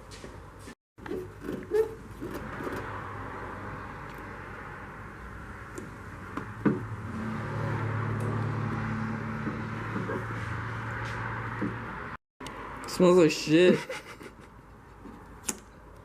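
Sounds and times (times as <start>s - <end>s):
vehicle engine running: 2.4s - 12.2s.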